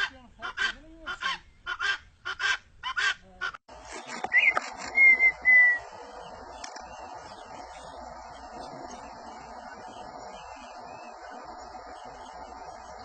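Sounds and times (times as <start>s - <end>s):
bird honking calls: 0.0s - 13.0s
insect chorus: 3.8s - 13.0s
bird whistling: 4.0s - 13.0s.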